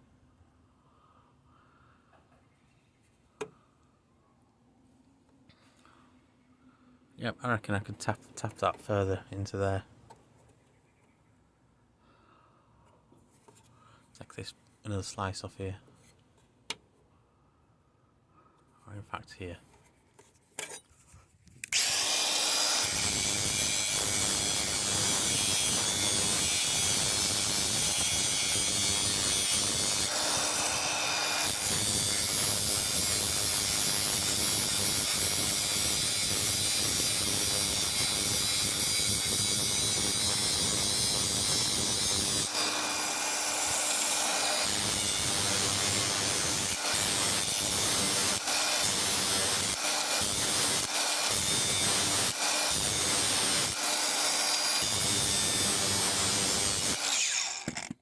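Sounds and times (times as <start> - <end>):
power grinder on sheet steel: 21.7 - 58.0.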